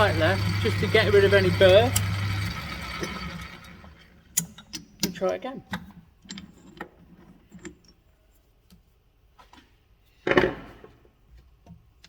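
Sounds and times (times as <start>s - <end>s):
metal parts clicking and tapping: 4.3s - 8.0s.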